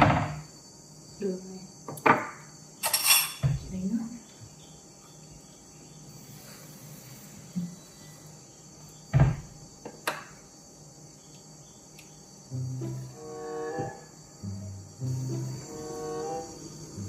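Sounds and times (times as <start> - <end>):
knocks on kitchen counter: 0.0 - 0.4, 2.0 - 2.4
crickets chirring: 0.0 - 17.0.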